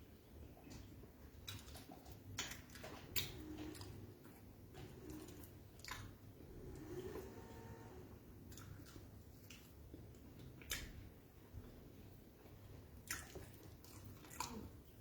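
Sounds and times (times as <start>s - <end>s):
chewing and mouth sounds: 0.4s - 6.3s, 8.5s - 15.0s
sharp clicks and smacks: 0.7s - 3.9s, 10.4s - 11.0s.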